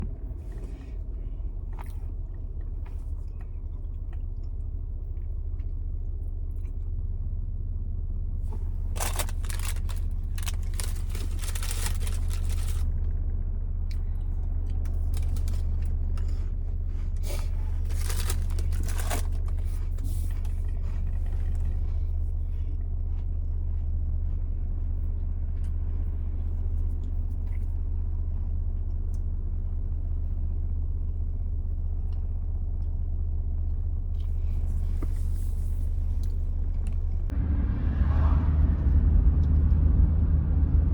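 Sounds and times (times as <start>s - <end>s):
car road rumble: 0.0s - 40.9s
sharp crackles: 8.9s - 12.9s.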